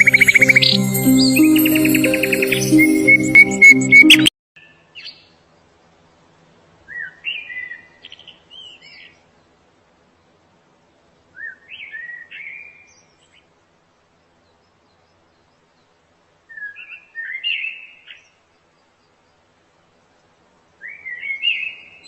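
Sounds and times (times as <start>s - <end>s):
music: 0.0s - 4.3s
songbird singing: 0.0s - 4.3s.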